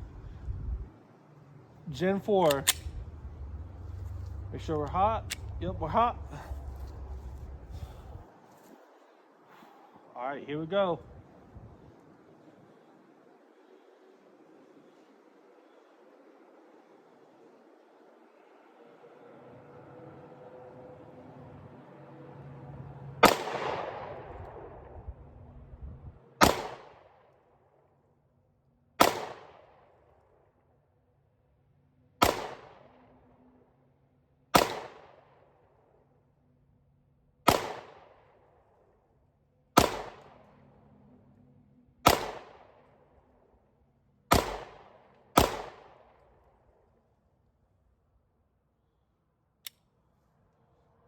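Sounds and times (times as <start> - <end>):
pistol shots with echo: 23.2 - 25.0, 26.4 - 27.3, 29.0 - 30.0, 32.2 - 33.0, 34.6 - 35.4, 37.5 - 38.4, 39.8 - 40.5, 42.0 - 42.8, 44.3 - 46.3.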